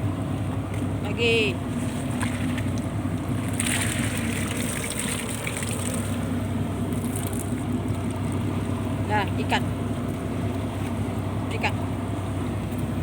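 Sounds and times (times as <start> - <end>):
boat engine running: 0.0 - 13.0
water splashing and pouring: 1.8 - 8.5.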